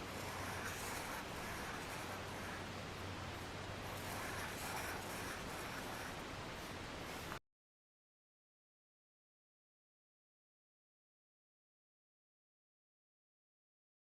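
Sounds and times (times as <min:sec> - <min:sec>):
pen scratching on paper: 0:00.0 - 0:02.9, 0:03.6 - 0:07.4
background hiss: 0:00.0 - 0:07.4
low hum: 0:00.0 - 0:07.4.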